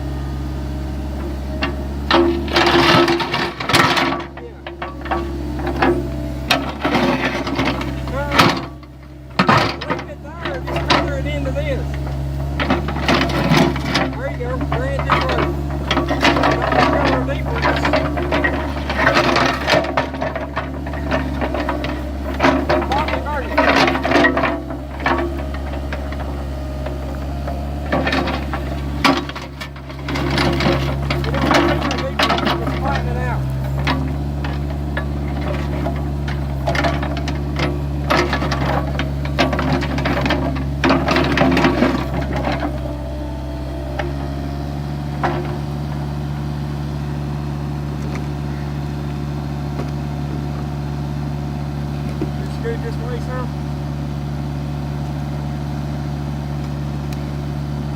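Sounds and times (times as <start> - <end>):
excavator diesel engine running: 0.0 - 57.9
scraping clatter: 1.2 - 50.6.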